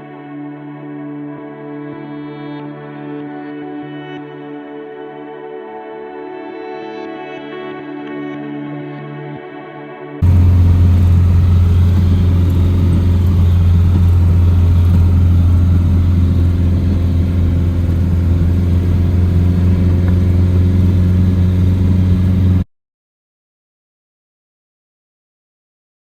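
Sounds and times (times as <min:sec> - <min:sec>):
vehicle engine droning: 0:10.2 - 0:22.6.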